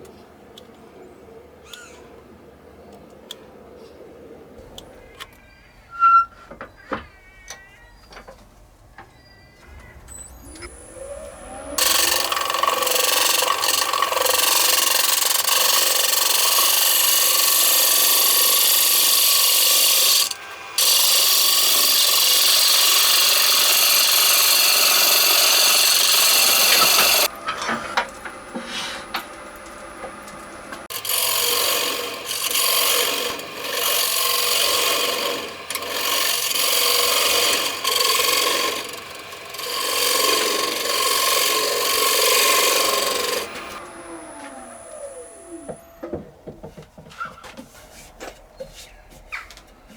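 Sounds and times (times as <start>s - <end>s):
lathe spinning hum: 10.2s - 46.2s
turning tool cutting wood: 10.3s - 27.7s, 28.3s - 46.2s.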